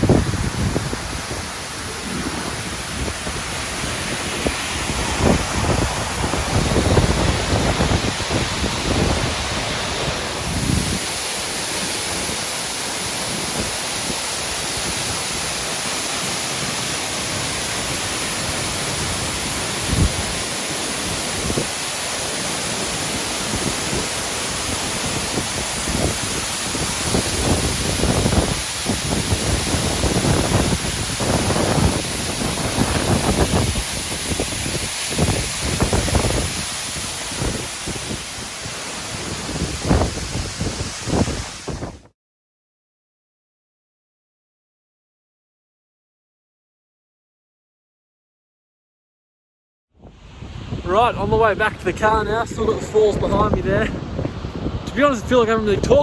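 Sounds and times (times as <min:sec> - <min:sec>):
wind buffeting microphone: 0:00.0 - 0:15.7, 0:16.7 - 0:42.1, 0:50.0 - 0:56.0
waterfall rushing: 0:00.0 - 0:42.0.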